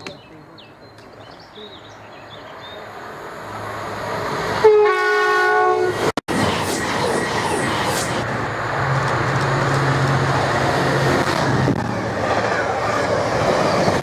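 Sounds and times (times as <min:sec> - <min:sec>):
train passing: 0:02.0 - 0:14.0
train horn: 0:04.6 - 0:06.1.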